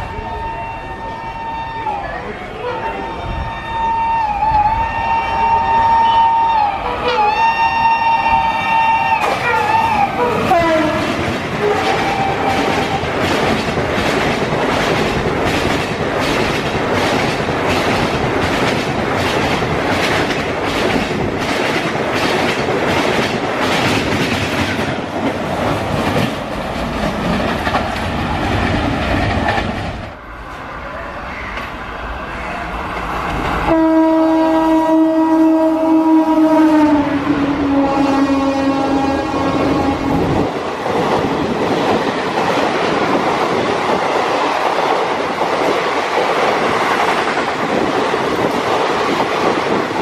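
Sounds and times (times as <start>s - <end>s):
train coaches rushing past: 0.0s - 50.0s
train horn: 0.2s - 13.0s, 33.6s - 40.4s
wheels clacking over rail joints: 9.2s - 30.2s.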